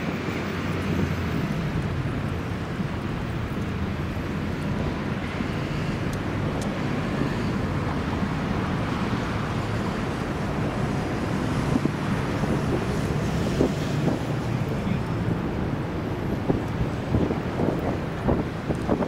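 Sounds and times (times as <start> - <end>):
road traffic: 0.0 - 19.0
wind on microphone: 4.8 - 19.0.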